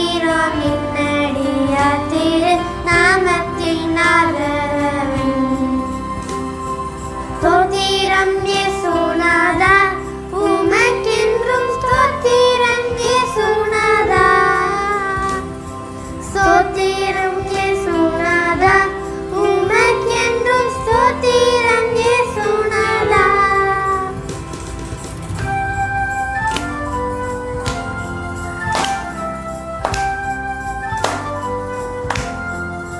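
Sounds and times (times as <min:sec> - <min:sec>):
child singing: 0:00.0 - 0:06.0, 0:07.4 - 0:15.6, 0:16.2 - 0:24.3
held instrumental backing: 0:00.0 - 0:32.9.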